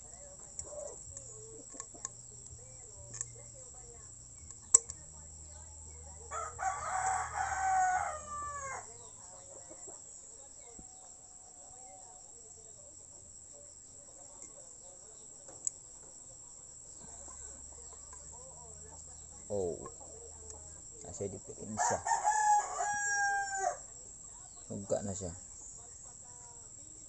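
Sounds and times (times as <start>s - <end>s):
rooster crowing: 6.3s - 9.0s, 21.7s - 23.9s.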